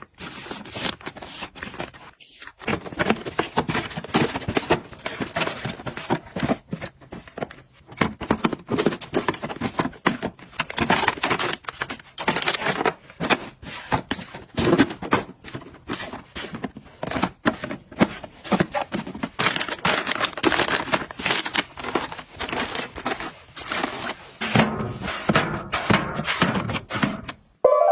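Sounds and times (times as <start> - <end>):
plastic packaging crinkling: 14.4 - 24.4.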